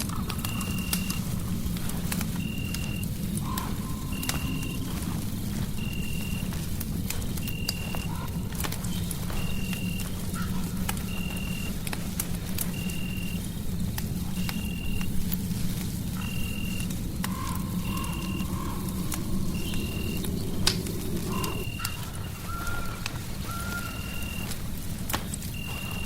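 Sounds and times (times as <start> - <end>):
fireplace crackling: 0.0 - 26.0
faint low rising tone: 17.2 - 21.8.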